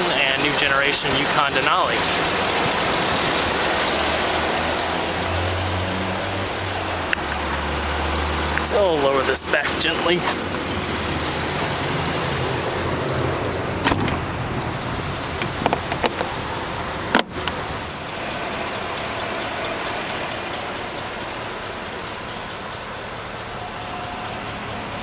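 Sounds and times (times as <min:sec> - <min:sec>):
hood latching knock: 0:13.8 - 0:14.7.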